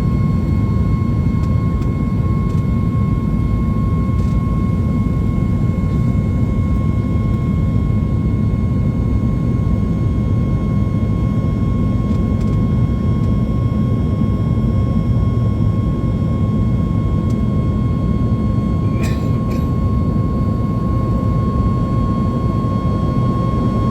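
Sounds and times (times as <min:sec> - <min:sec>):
jet engine cabin roar: 0:00.0 - 0:23.9.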